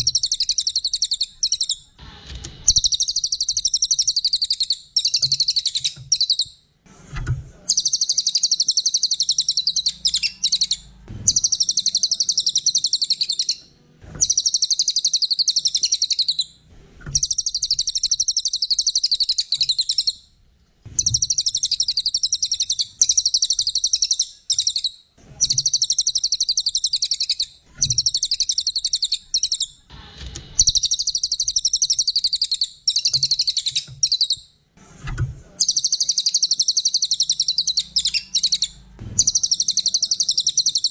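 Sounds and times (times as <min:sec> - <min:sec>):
songbird trilling: 0:00.0 - 0:01.9, 0:02.7 - 0:06.5, 0:07.7 - 0:13.6, 0:14.2 - 0:16.5, 0:17.2 - 0:20.2, 0:21.0 - 0:29.8, 0:30.6 - 0:34.4, 0:35.6 - 0:40.9.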